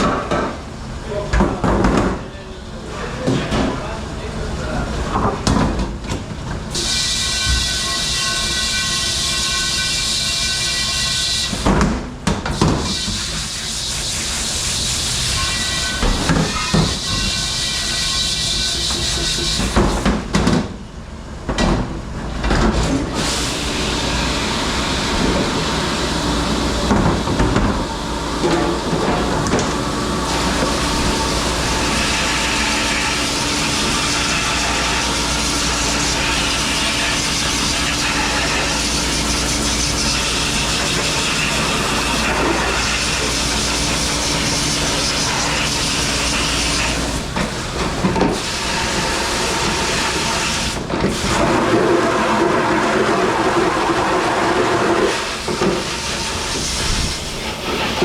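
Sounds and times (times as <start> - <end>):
dishwasher motor hum: 12.6 - 20.0, 22.5 - 58.0.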